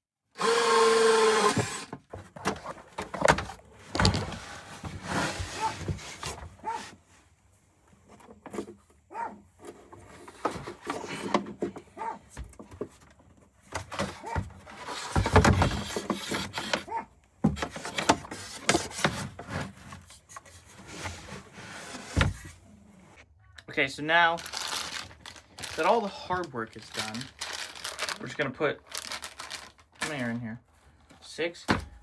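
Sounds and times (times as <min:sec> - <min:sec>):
knocking and scraping wooden parts: 0:00.4 - 0:07.1, 0:07.9 - 0:22.6.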